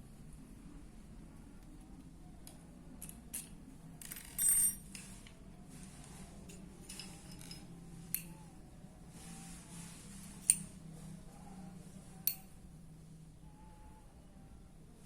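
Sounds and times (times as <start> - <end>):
faint steady hum: 0.0 - 15.0
light metallic clicks: 12.2 - 12.5.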